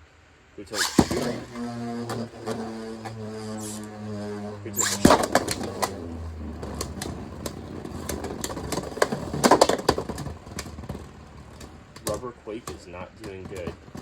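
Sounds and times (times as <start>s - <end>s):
steady low drone: 0.6s - 9.4s
spinning tops whirring: 0.7s - 14.0s.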